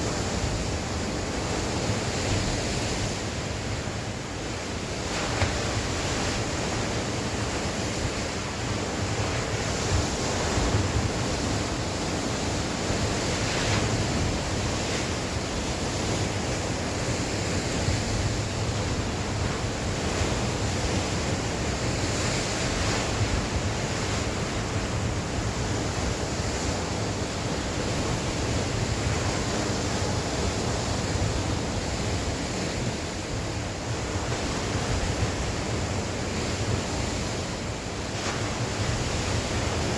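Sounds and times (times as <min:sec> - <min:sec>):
sea waves breaking on shore: 0:00.0 - 0:39.9
wind blowing across microphone: 0:00.0 - 0:39.9.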